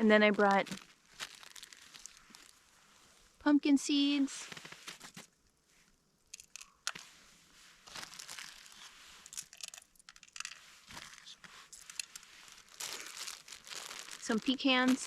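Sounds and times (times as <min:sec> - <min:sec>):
seeds clicking and crunching: 0:00.2 - 0:02.6, 0:06.3 - 0:07.0, 0:07.8 - 0:15.0
packaging crinkling: 0:00.4 - 0:02.6, 0:07.8 - 0:15.0.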